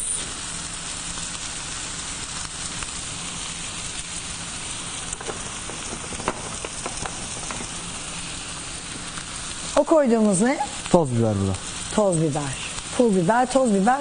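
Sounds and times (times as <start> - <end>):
filling sizzling in butter: 0.0 - 14.0
sharp crackles: 0.0 - 14.0.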